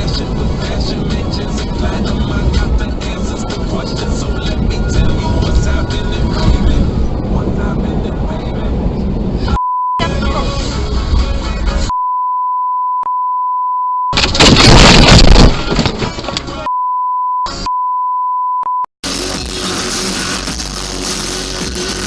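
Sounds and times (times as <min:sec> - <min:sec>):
music: 0:00.0 - 0:07.2, 0:10.0 - 0:11.9, 0:19.0 - 0:22.0
censor bleep tone: 0:09.5 - 0:10.0, 0:11.9 - 0:14.2, 0:16.7 - 0:18.9
loud noisy burst: 0:14.2 - 0:15.7.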